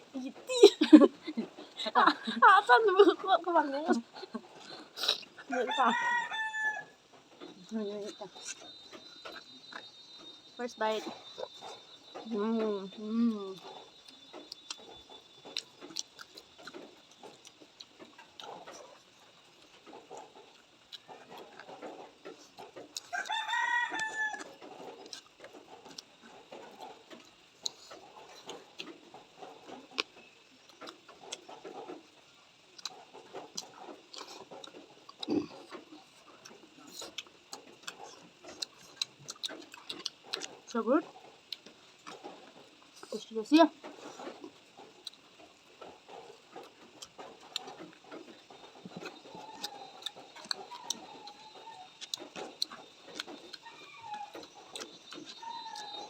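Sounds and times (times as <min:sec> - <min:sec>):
chewing and mouth sounds: 0:03.2 - 0:06.3, 0:07.1 - 0:56.0
rooster crowing: 0:05.4 - 0:07.0, 0:23.0 - 0:24.6, 0:49.2 - 0:52.2, 0:53.6 - 0:56.0
crunching clicks: 0:43.8 - 0:56.0.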